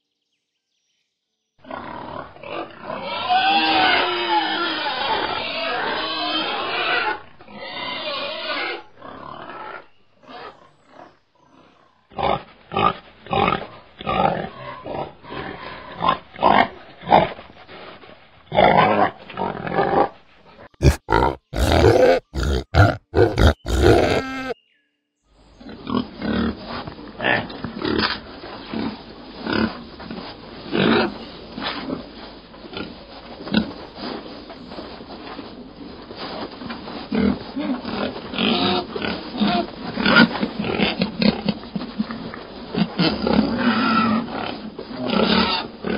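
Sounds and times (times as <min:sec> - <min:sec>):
pigs grunting: 0:01.6 - 0:17.4, 0:20.8 - 0:24.6, 0:37.0 - 0:45.9.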